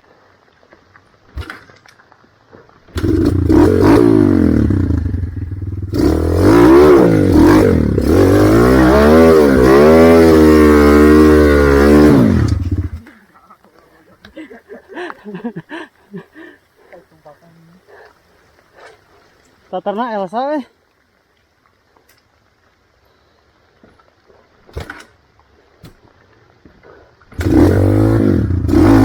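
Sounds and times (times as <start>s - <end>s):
motorcycle engine revving: 2.9s - 13.1s, 27.3s - 29.0s.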